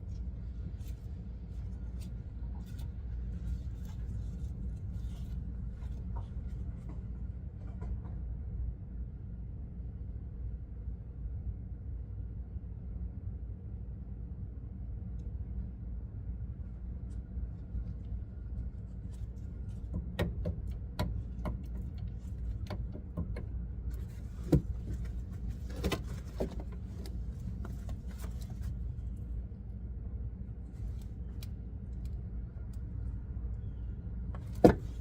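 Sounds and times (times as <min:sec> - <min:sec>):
steady low rumble: 0:00.0 - 0:35.0.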